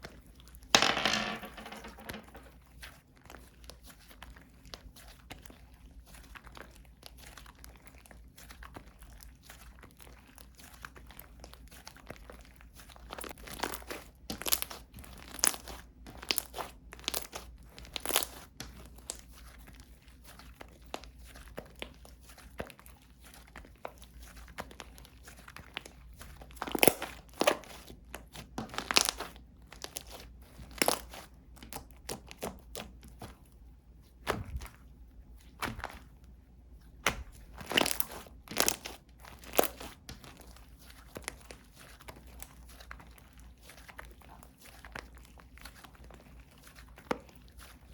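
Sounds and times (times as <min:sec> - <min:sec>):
slime crackling and popping: 0:37.0 - 0:40.4.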